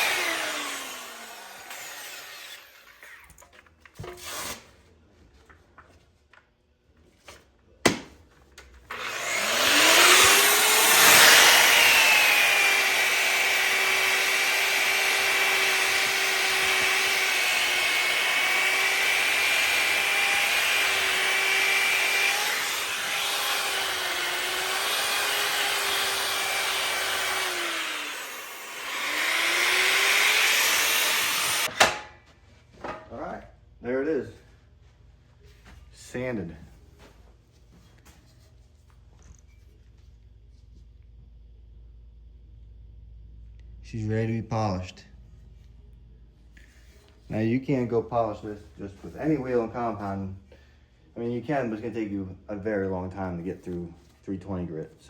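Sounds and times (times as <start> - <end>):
grinder sanding metal: 0.0 - 3.0, 9.0 - 31.7.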